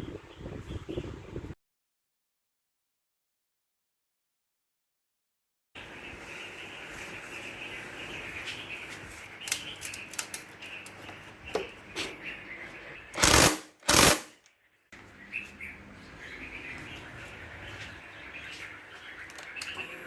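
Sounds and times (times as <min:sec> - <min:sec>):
birds chirping: 0:00.0 - 0:01.6, 0:05.8 - 0:20.0
sharp clicks: 0:13.2 - 0:14.4.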